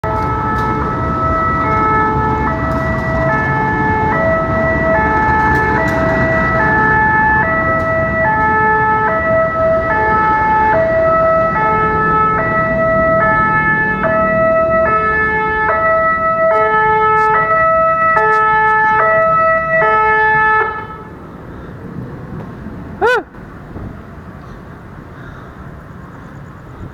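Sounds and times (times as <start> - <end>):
level crossing alarm alternating tones: 0.0 - 21.0.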